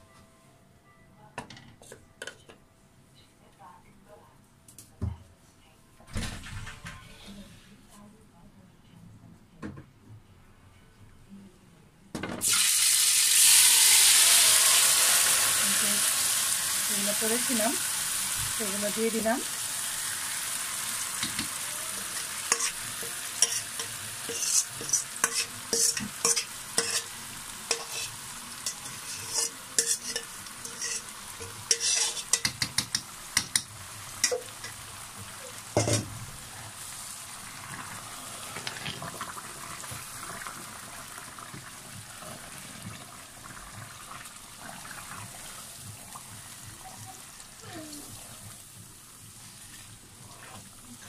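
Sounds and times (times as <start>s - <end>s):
paste sizzling in hot oil: 12.4s - 36.0s
wooden spatula scraping a pan: 22.0s - 27.1s, 27.7s - 32.5s.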